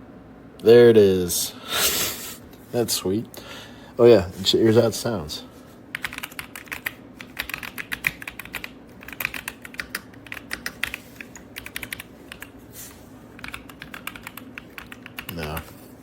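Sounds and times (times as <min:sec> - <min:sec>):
mechanical keyboard typing: 0:05.9 - 0:12.5, 0:13.4 - 0:15.7.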